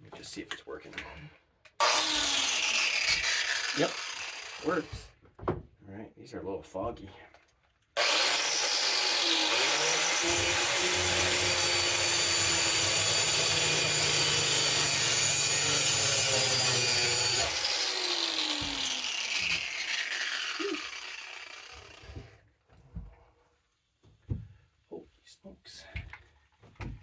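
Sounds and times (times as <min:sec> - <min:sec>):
grinder disc spinning down: 0:01.8 - 0:04.9, 0:08.0 - 0:22.2
electric grinder grinding steel: 0:01.8 - 0:05.0, 0:08.0 - 0:22.3.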